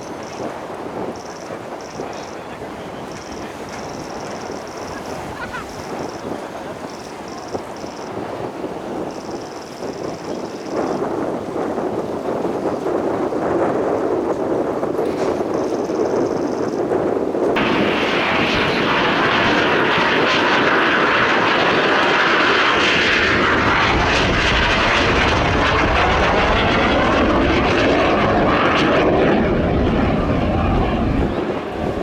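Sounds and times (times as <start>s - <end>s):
jets flying past: 17.5s - 32.0s.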